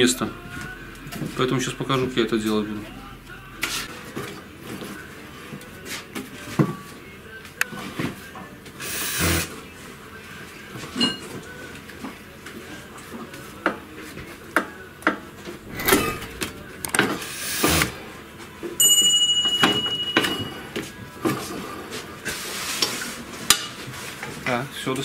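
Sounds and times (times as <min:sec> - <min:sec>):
tools scraping: 0:15.6 - 0:18.0.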